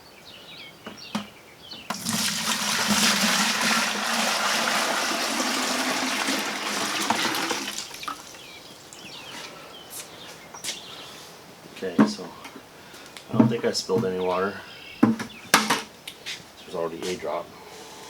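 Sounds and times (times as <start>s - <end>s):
water pouring into bucket: 1.9s - 9.1s.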